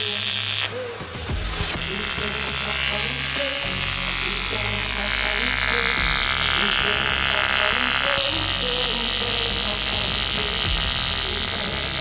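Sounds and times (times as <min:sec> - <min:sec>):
welding arc buzzing: 0:00.0 - 0:12.0.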